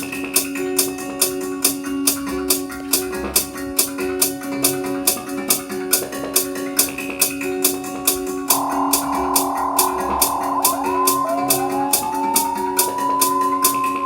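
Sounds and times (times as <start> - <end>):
crisp percussion ticking: 8.5 - 14.0.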